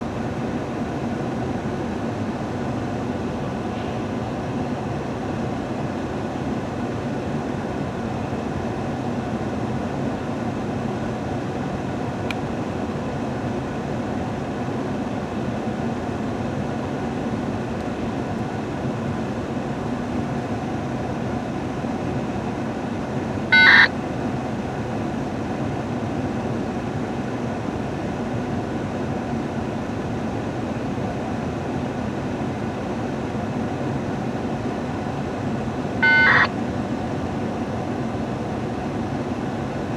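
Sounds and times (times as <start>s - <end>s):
diesel locomotives idling: 23.5s - 23.9s.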